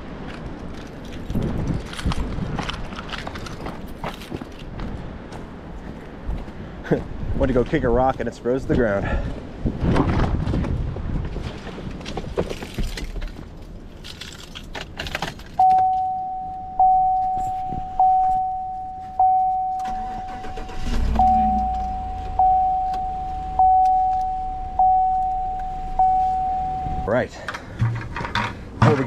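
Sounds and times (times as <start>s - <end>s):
car warning chime: 15.6s - 27.3s
car engine running: 15.7s - 27.1s.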